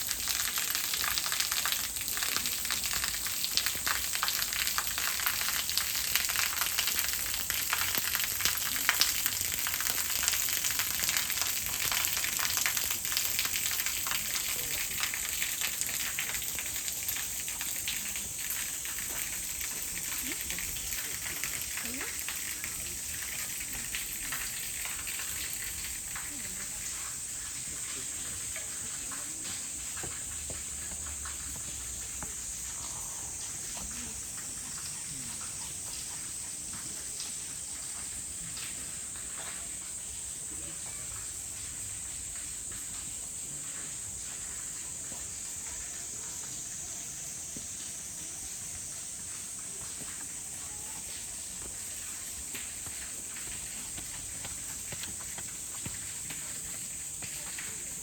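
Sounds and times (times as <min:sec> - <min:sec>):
cicadas droning: 0:00.0 - 0:58.0
faint footsteps: 0:28.6 - 0:34.6, 0:48.9 - 0:57.9.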